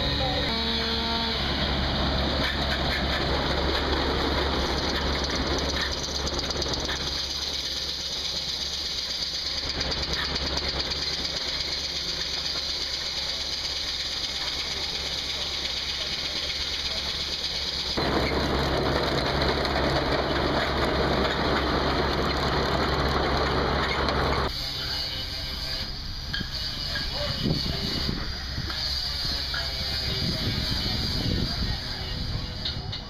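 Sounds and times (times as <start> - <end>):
saw cutting through log: 0.0 - 32.1
engine drone: 0.0 - 33.0.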